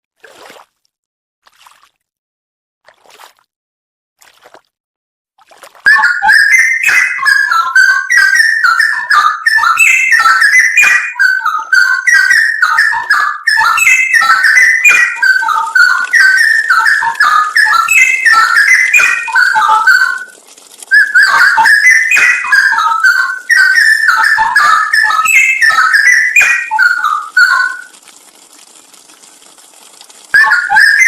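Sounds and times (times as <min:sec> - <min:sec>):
bird singing liquid whistles: 0:05.9 - 0:28.8, 0:30.0 - 0:31.0.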